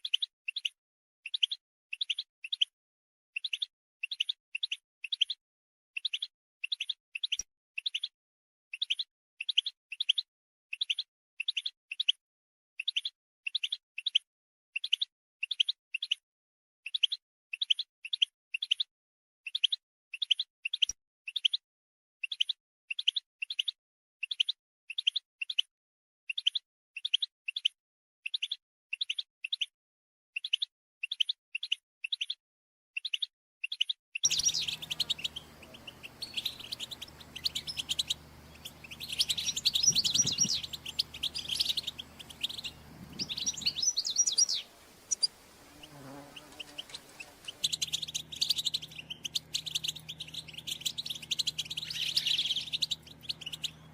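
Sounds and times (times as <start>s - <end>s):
goldfinches chirping and twittering: 33.0s - 53.9s
low steady hum: 34.3s - 53.9s.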